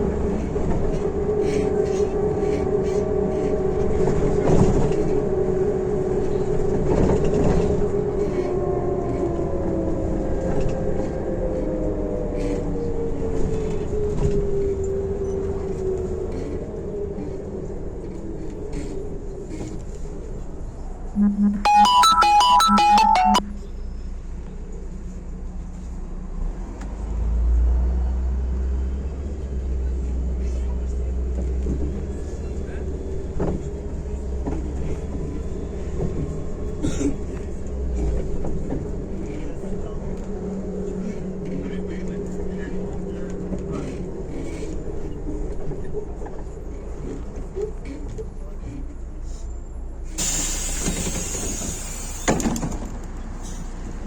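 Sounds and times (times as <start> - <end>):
bus engine and road rumble: 0.0 - 21.2, 23.9 - 54.0
rattles and knocks from bus body: 0.1 - 5.3, 52.2 - 53.7
electronic chime: 21.2 - 23.7
short beeps: 21.2 - 23.7.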